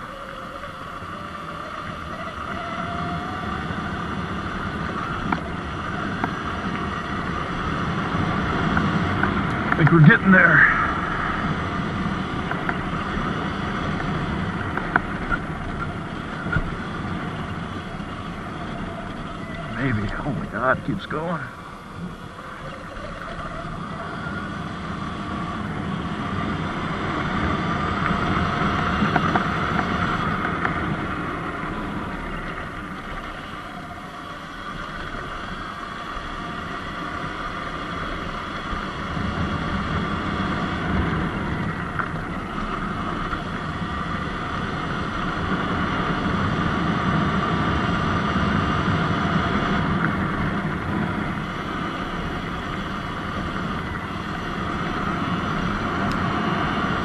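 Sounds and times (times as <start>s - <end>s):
electric dirt bike motor whine: 0.0s - 57.0s
steady low rumble: 0.0s - 57.0s.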